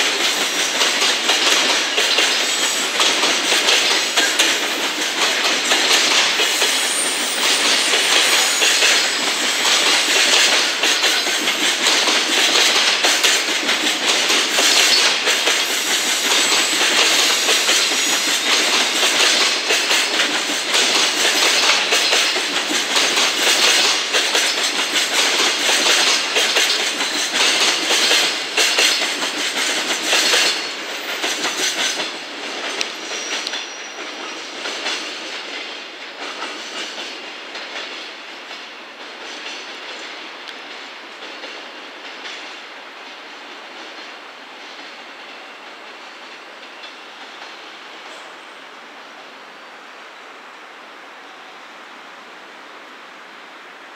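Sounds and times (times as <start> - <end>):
train wheels clattering over points: 0.0 - 42.5.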